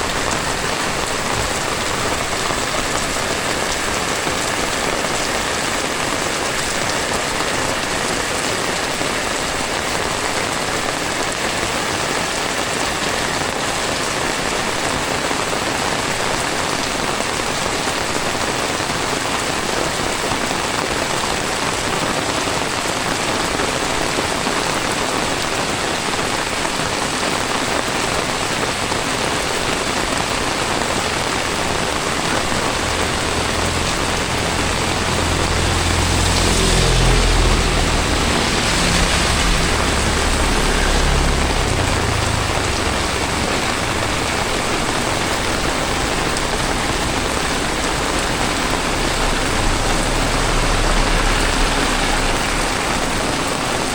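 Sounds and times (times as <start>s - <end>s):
heavy rain pouring: 0.0s - 53.9s
low rumble: 31.4s - 53.9s.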